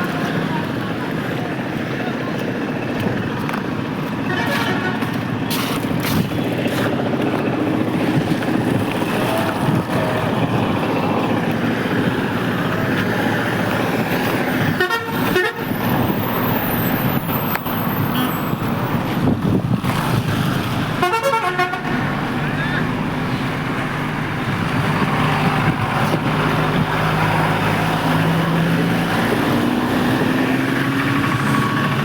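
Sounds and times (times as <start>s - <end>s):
heavy rain pouring: 7.3s - 14.6s.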